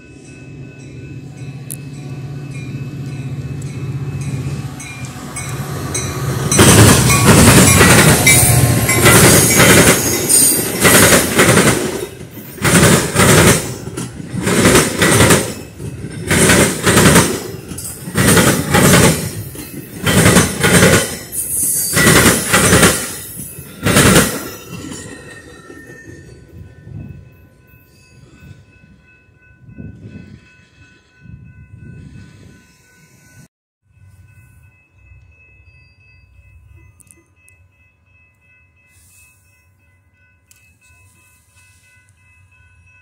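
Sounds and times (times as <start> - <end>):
railroad crossing bell ringing: 0.0 - 43.0
train wheels clattering: 5.0 - 26.5.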